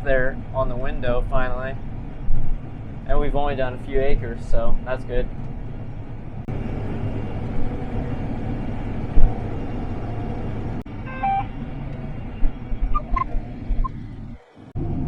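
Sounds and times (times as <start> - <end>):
combine harvester rumbling: 0.0 - 15.0
short beeps: 11.1 - 11.5, 12.9 - 14.0.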